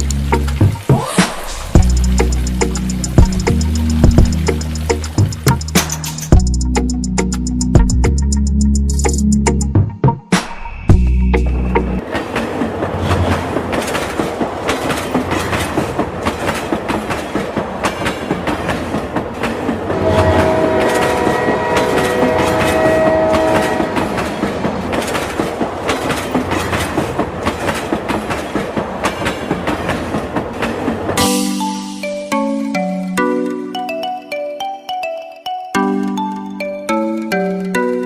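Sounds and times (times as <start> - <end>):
train wheels clacking on rails: 11.7 - 31.8
train horn: 19.9 - 24.8.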